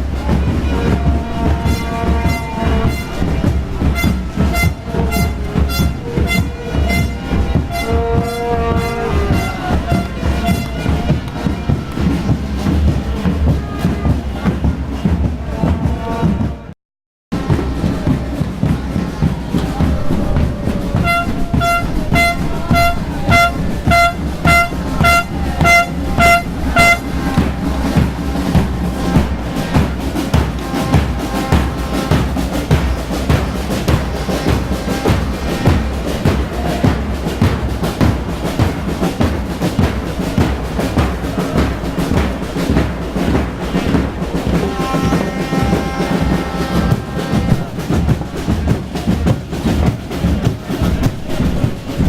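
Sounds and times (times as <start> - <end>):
bass drum and snare beating: 0.0 - 16.7, 17.3 - 52.0
loud street din: 0.0 - 16.7, 17.3 - 52.0
car horn short toots: 1.6 - 3.3, 3.9 - 11.5, 21.0 - 27.4
low thumps: 17.4 - 52.0
held pitched tone: 19.6 - 29.8.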